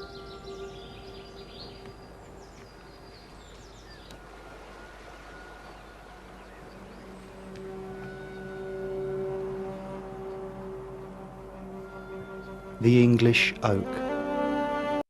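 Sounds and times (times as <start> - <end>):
held music chord: 0.0 - 3.2, 6.5 - 15.0
birds chirping: 0.0 - 14.3.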